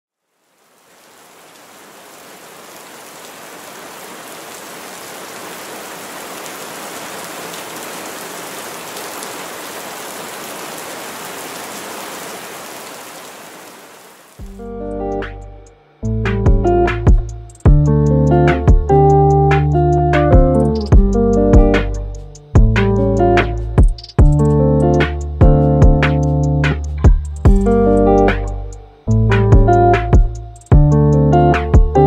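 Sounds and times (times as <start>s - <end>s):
heavy rain on car roof: 0.4s - 14.4s.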